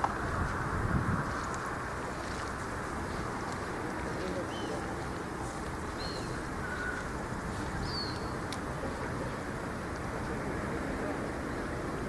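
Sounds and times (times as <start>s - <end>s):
outdoor background noise: 0.0s - 12.0s
bird chirps: 6.0s - 7.0s, 7.8s - 8.4s.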